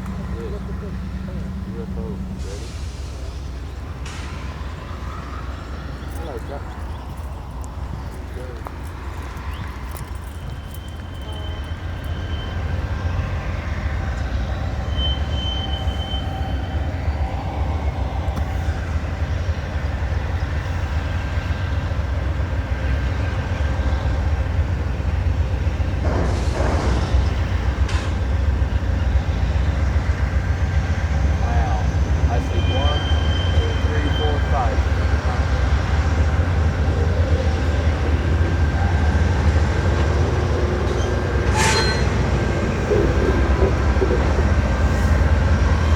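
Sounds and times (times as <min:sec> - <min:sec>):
train rumbling by: 0:00.0 - 0:45.9
high-pitched wheel squeals: 0:10.2 - 0:13.6, 0:14.4 - 0:17.4, 0:32.3 - 0:35.1, 0:40.7 - 0:45.9.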